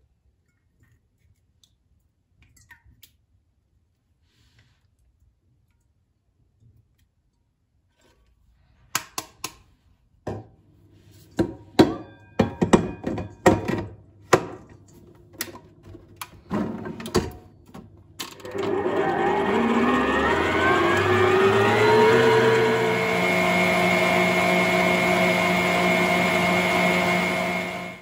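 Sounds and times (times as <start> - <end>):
electric kitchen mixer running: 18.2 - 28.0.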